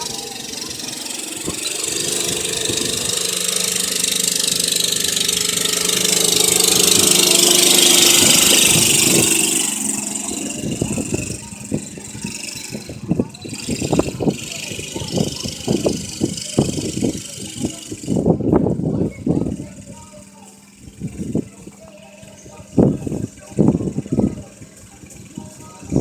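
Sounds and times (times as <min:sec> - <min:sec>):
motorcycle engine running: 0:00.0 - 0:26.0
wind noise: 0:00.0 - 0:26.0.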